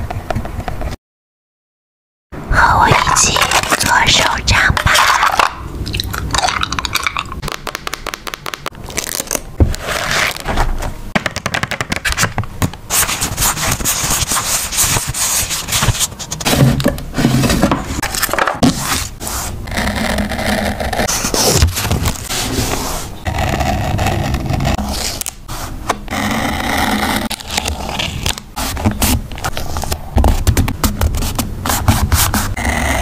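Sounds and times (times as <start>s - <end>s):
paper rubbing and scraping: 8.0s - 10.9s, 12.9s - 33.0s.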